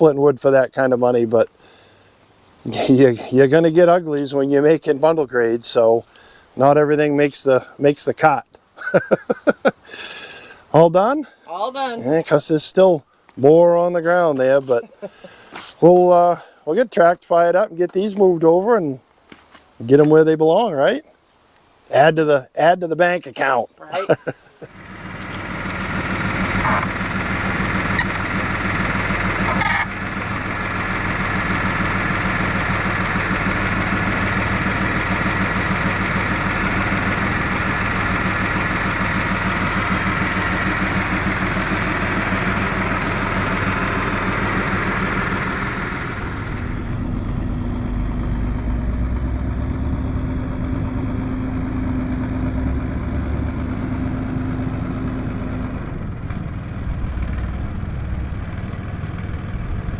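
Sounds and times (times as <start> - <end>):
tractor engine running: 0.0 - 18.8, 23.4 - 59.9
engine knocks: 24.7 - 59.9.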